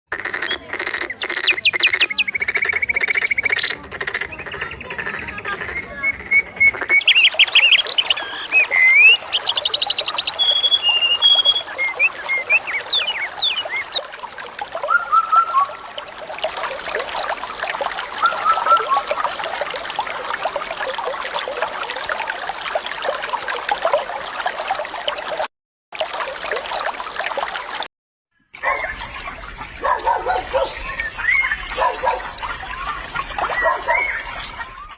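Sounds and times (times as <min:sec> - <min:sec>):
small birds chirping: 0:05.6 - 0:14.0, 0:28.6 - 0:34.9
water trickling: 0:07.0 - 0:27.9, 0:28.6 - 0:34.9.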